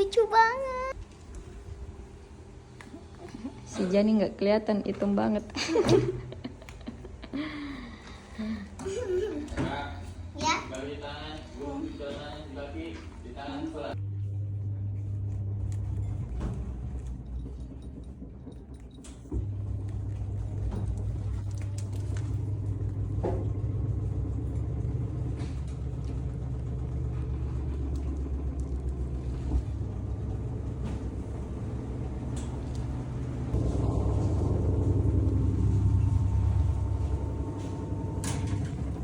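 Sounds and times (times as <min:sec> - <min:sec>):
low mechanical rumble: 0:00.0 - 0:39.0.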